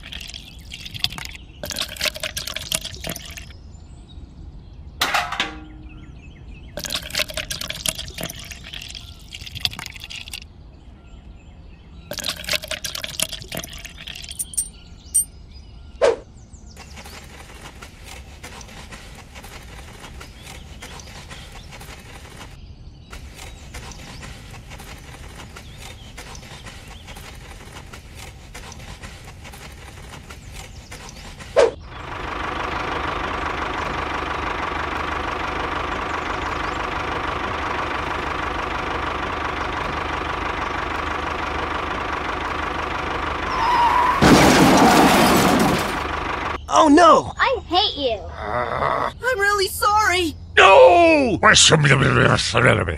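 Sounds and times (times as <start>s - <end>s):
small tractor engine running: 0.0s - 3.5s, 5.0s - 10.4s, 16.7s - 46.6s.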